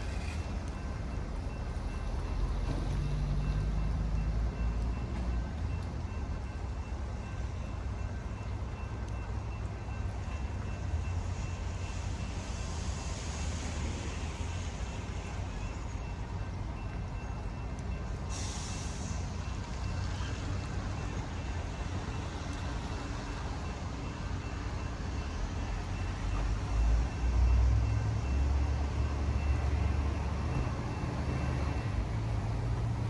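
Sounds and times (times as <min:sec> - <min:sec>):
air hiss: 0:18.3 - 0:19.3.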